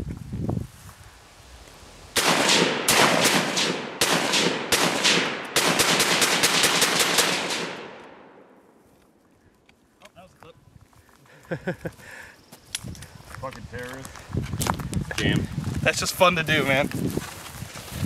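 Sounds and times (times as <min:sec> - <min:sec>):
rifle rapid gunshots: 0:02.2 - 0:08.0
gunshot echo: 0:02.2 - 0:08.5.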